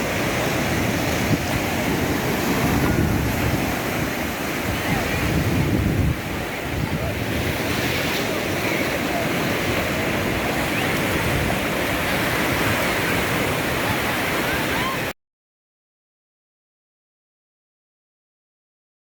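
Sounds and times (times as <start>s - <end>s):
sea surf washing onto shore: 0.0s - 15.1s.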